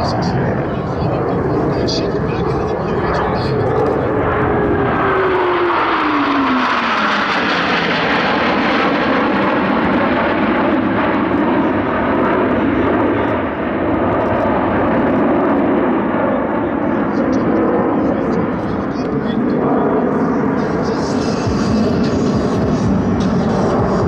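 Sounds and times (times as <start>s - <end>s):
jets roaring past: 0.0s - 24.0s.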